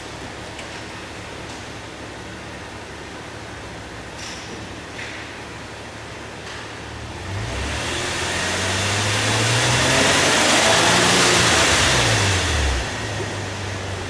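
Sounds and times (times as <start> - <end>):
car engine revving: 7.0 - 14.0.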